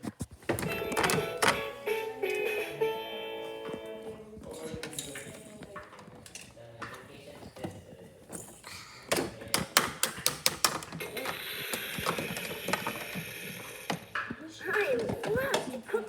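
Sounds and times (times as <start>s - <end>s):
plastic toy pieces clicking: 9.6s - 13.9s.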